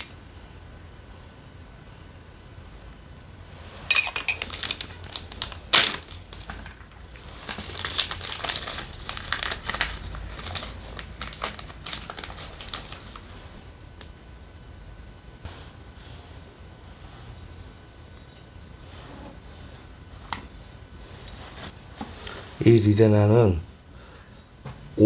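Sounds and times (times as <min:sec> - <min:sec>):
metal parts and tools clattering: 0:03.9 - 0:04.9.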